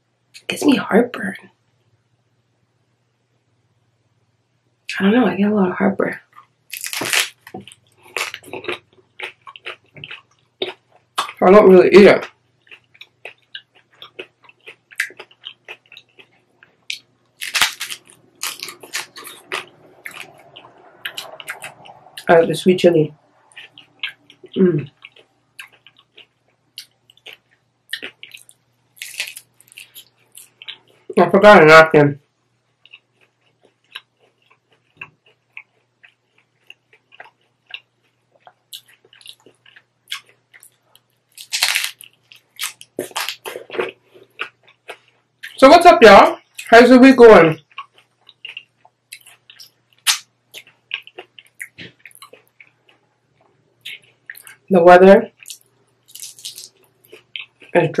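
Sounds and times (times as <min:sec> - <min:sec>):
taco shell crunching: 0:06.4 - 0:11.4, 0:12.2 - 0:22.4, 0:23.3 - 0:31.0, 0:32.8 - 0:45.6, 0:47.6 - 0:54.6, 0:55.3 - 0:57.8.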